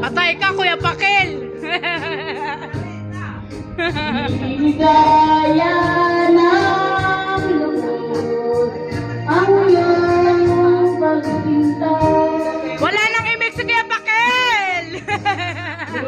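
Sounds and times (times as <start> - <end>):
keyboard backing track: 0.0 - 16.0
woman singing a slow ballad: 4.2 - 13.6.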